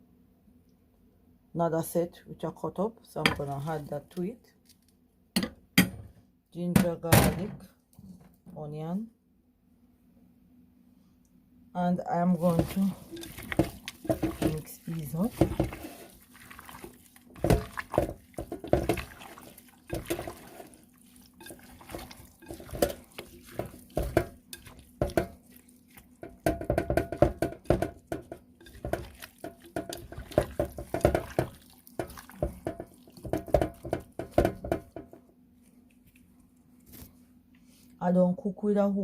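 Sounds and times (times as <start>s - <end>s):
hands squelching wet meat: 12.4s - 34.9s.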